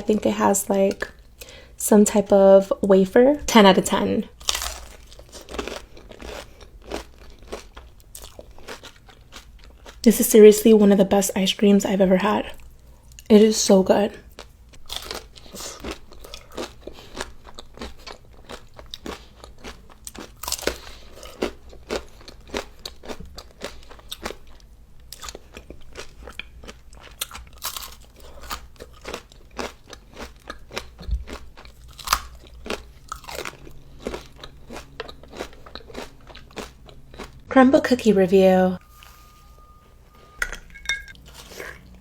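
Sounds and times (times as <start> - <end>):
crunching and chewing food: 4.3 - 10.1, 14.1 - 37.5, 41.2 - 42.0.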